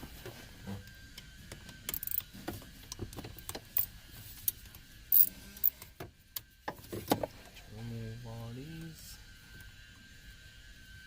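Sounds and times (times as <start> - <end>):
ratchet wrench clicking: 1.9 - 2.2, 5.1 - 5.8.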